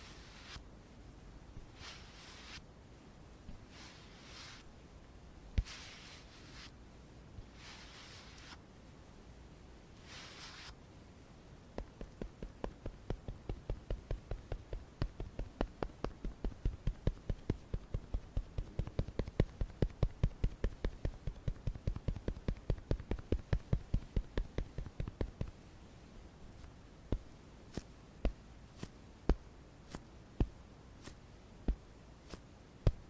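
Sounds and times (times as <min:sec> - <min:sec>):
makeup being patted on: 0:11.7 - 0:25.6, 0:26.6 - 0:33.0.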